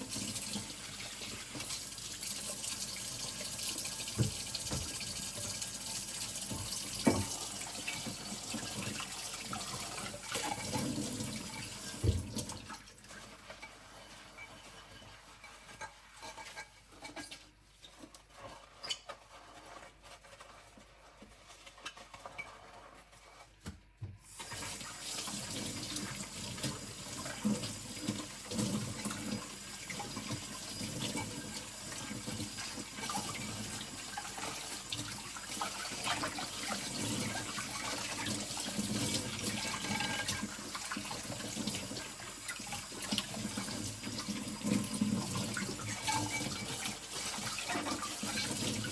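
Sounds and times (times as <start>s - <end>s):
tap water running into sink: 0.0s - 14.7s, 23.3s - 48.9s
glassware scrubbed by hand: 13.1s - 23.5s, 45.8s - 48.9s.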